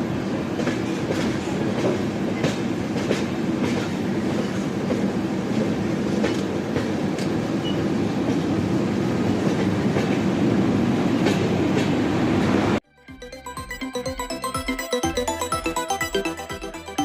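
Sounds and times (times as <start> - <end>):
train rumbling on track: 0.0 - 12.8.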